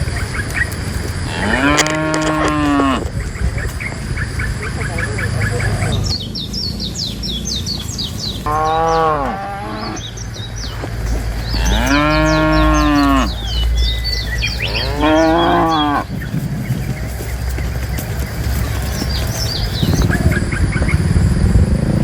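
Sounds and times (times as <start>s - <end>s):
cows mooing: 0.9s - 6.1s, 8.4s - 20.6s
high chirps: 2.8s - 21.2s.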